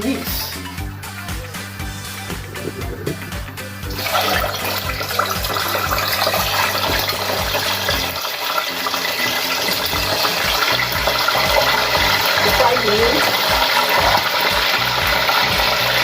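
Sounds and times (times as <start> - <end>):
meat sizzling in hot oil: 3.8 - 16.0.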